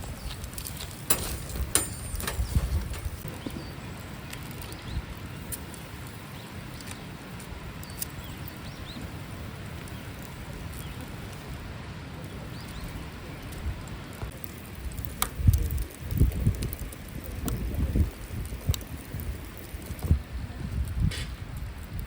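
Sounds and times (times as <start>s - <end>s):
wind on microphone: 0.0s - 22.0s
low bump: 1.1s - 3.8s.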